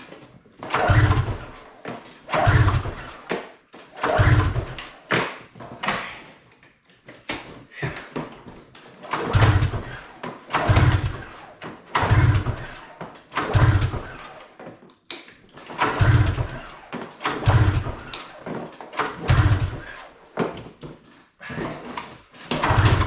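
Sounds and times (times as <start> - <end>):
snowmobile engine turning over: 0.7 - 3.3, 4.0 - 4.9, 9.0 - 14.5, 15.6 - 20.4, 22.5 - 23.0.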